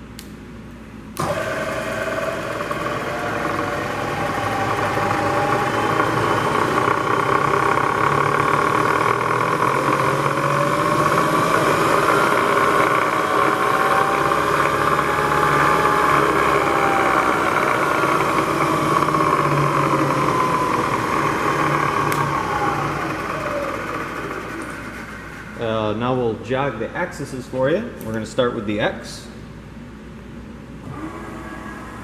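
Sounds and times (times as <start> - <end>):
mill spindle humming: 0.1 - 28.2, 29.7 - 32.0.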